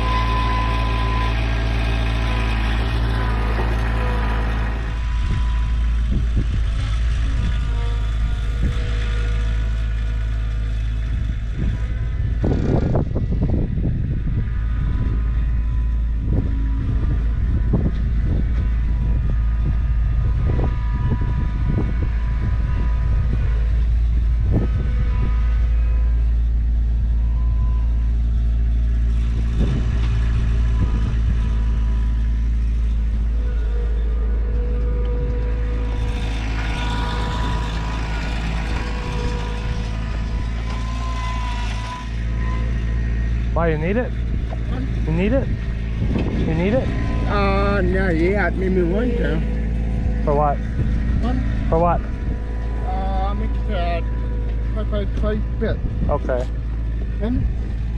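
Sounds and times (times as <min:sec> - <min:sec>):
car engine and road rumble: 0:00.0 - 0:57.9.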